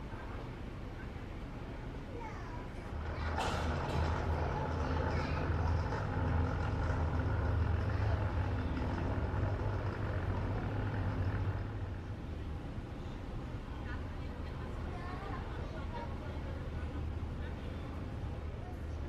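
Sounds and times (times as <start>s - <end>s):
faint voices: 0.0s - 19.0s
low mechanical drone: 2.8s - 14.0s.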